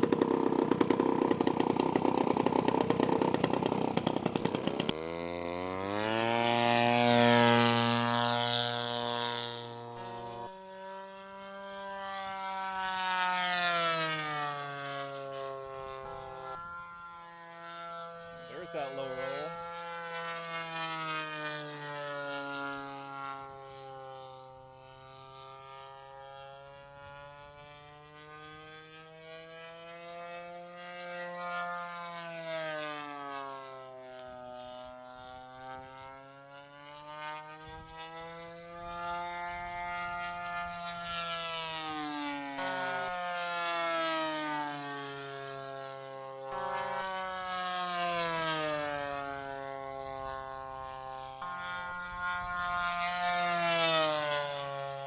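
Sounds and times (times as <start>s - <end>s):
model plane engine buzzing: 0.0s - 55.0s.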